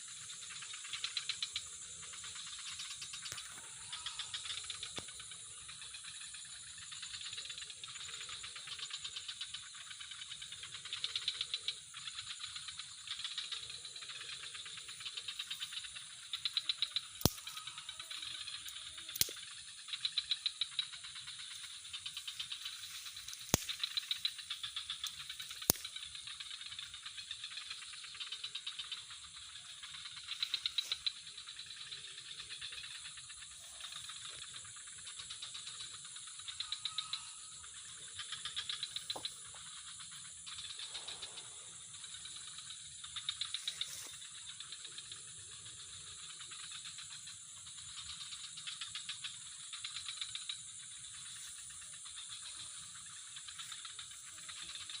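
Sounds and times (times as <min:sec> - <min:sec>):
high hum of insects: 0:00.0 - 0:55.0
insects chirring in pulsed trills: 0:00.0 - 0:55.0
sharp clicks: 0:16.5 - 0:19.6, 0:23.3 - 0:24.4, 0:25.0 - 0:26.0.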